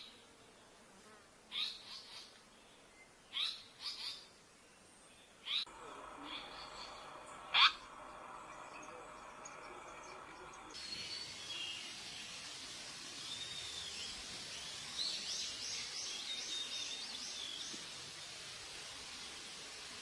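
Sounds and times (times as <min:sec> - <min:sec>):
steady background hiss: 0:00.0 - 0:20.0
birds calling: 0:05.4 - 0:11.9.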